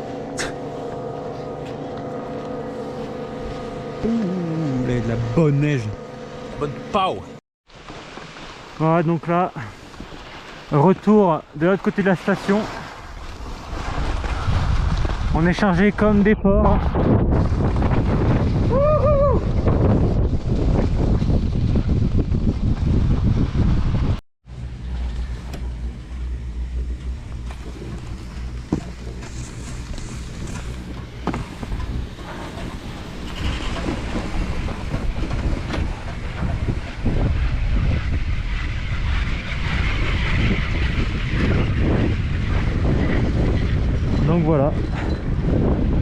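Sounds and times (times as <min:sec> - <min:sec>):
skis scraping on snow: 0:07.7 - 0:15.6, 0:27.3 - 0:43.5
wind on microphone: 0:13.0 - 0:46.0.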